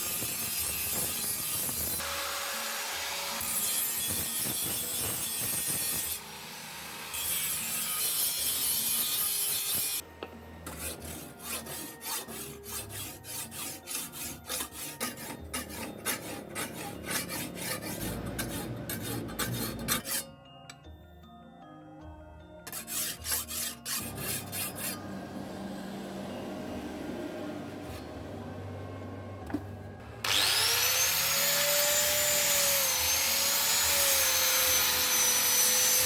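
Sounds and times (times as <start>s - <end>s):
file rasping on sickle blade: 10.7s - 20.3s, 22.7s - 25.0s
rapid file strokes: 10.7s - 20.3s, 22.7s - 25.0s.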